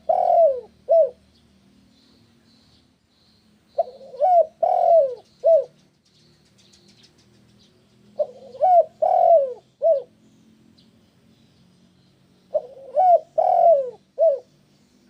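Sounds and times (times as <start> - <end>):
dove cooing: 0.0 - 1.2, 3.8 - 5.8, 8.1 - 10.2, 12.5 - 14.6
small birds chirping: 0.0 - 15.0.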